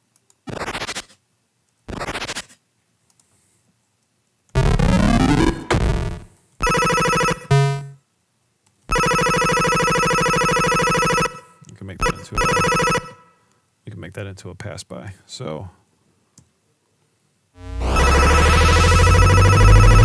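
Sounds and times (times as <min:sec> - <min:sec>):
buzzy electronic tones: 0:04.6 - 0:06.3, 0:17.6 - 0:20.0
rising and falling synth tones: 0:04.6 - 0:06.3, 0:17.6 - 0:20.0.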